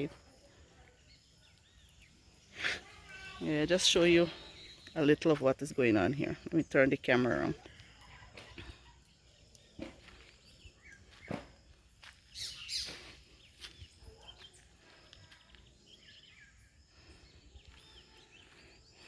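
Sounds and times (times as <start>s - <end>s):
bird chirps: 3.9s - 5.2s, 6.0s - 19.0s.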